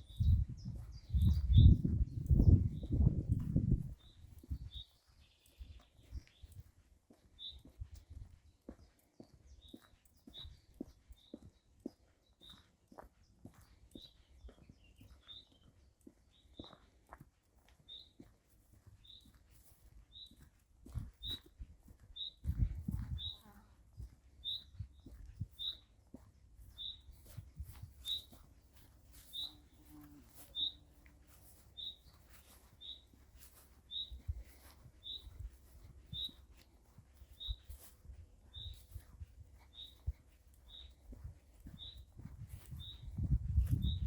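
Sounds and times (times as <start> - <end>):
small bird high call: 29.2 - 29.6.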